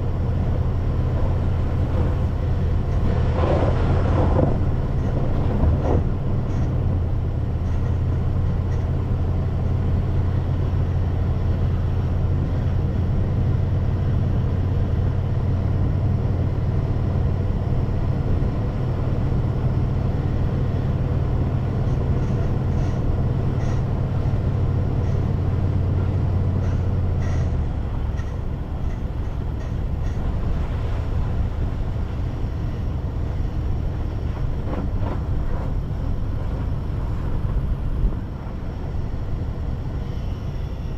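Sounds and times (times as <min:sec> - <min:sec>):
car road and engine rumble: 0:00.0 - 0:40.9.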